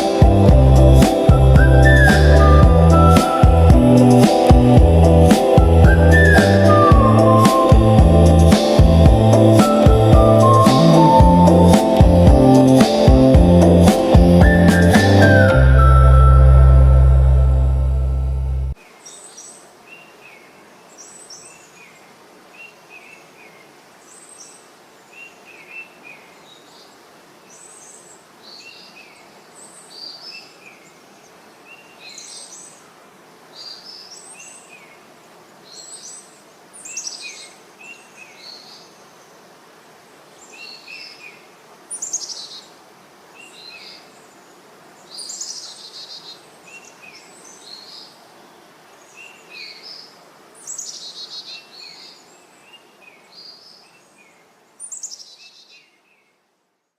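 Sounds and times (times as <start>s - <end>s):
faint background hiss: 0.0s - 56.9s
small birds chirping: 43.4s - 56.4s.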